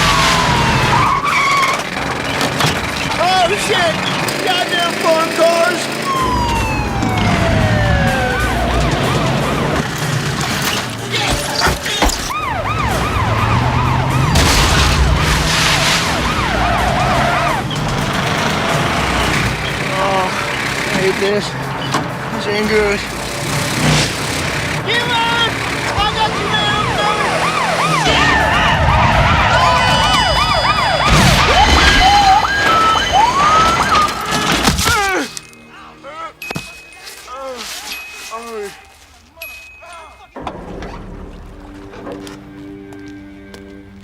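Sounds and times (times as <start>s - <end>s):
police siren yelping: 0.0s - 2.0s, 5.6s - 10.1s, 11.0s - 21.2s, 24.7s - 34.7s
car engine revving: 0.0s - 11.1s, 12.4s - 34.3s.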